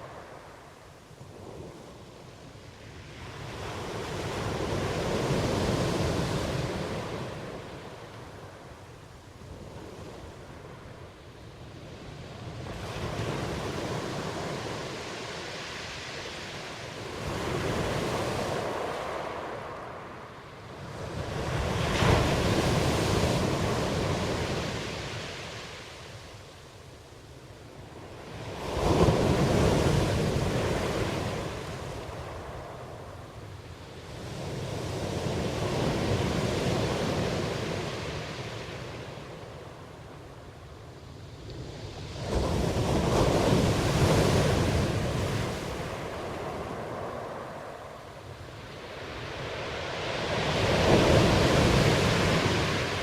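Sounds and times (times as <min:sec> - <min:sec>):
ocean waves breaking: 0:12.5 - 0:26.2, 0:41.6 - 0:53.0.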